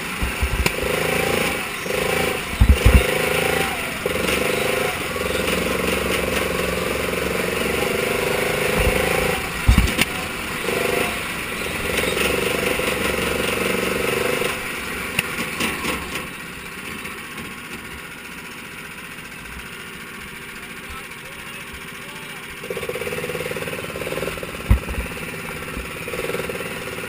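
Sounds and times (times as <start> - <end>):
car engine at high revs: 0.0 - 27.0
low thumps: 0.2 - 4.8, 5.4 - 14.4, 24.4 - 25.9
clicks: 0.2 - 6.7, 8.6 - 11.0.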